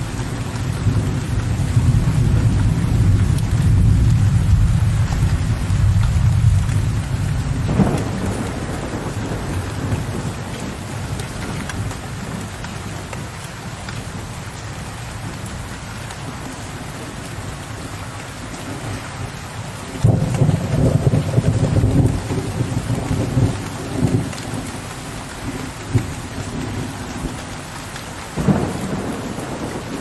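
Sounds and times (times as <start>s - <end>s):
thunder rumbling: 0.0s - 13.0s, 19.9s - 27.6s, 28.2s - 30.0s
steady rain: 0.0s - 30.0s.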